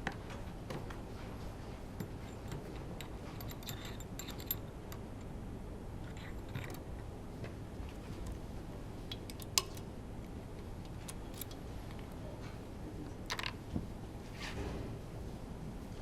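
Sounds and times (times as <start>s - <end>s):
low steady hum: 0.0s - 16.0s
metal tools clicking and clinking: 2.0s - 5.0s, 11.1s - 11.6s.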